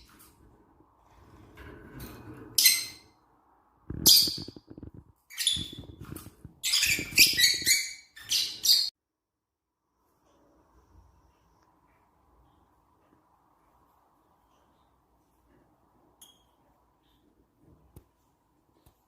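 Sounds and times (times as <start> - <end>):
lovebirds chirping: 3.9 - 8.9.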